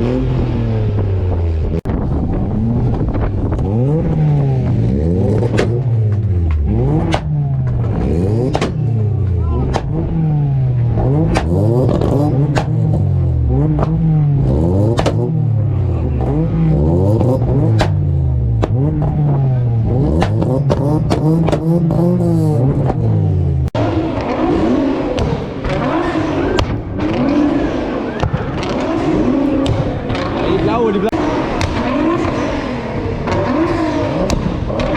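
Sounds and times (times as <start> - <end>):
another engine running: 0.0 - 34.9
car engine revving: 0.0 - 34.9
exhaust pops and bangs: 0.0 - 34.9
busy background noise: 7.4 - 22.1.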